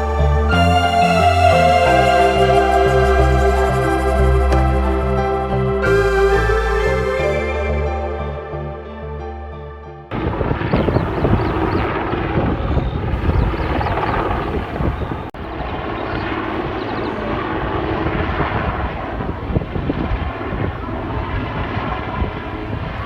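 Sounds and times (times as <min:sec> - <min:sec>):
aircraft engine: 0:10.4 - 0:23.0.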